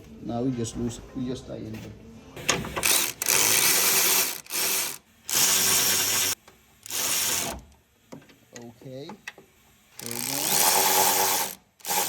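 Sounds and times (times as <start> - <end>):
cordless power tool driving bolts: 2.6 - 7.7, 10.0 - 12.0.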